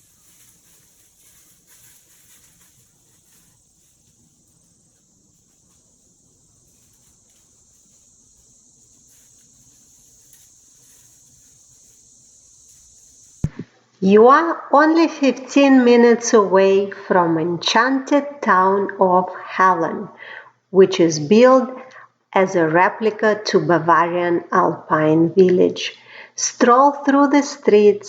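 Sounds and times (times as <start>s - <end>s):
insects trilling: 0.0s - 13.6s.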